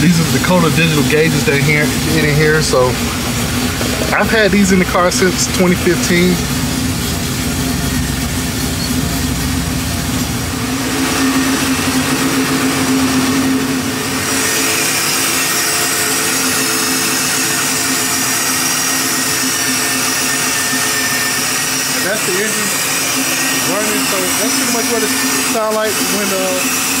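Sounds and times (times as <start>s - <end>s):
car engine idling: 0.0s - 14.7s.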